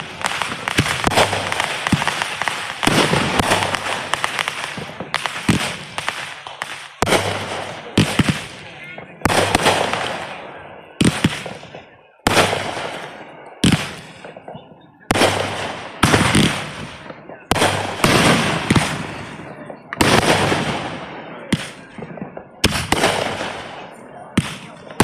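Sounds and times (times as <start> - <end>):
fireworks banging: 0.0 - 25.0.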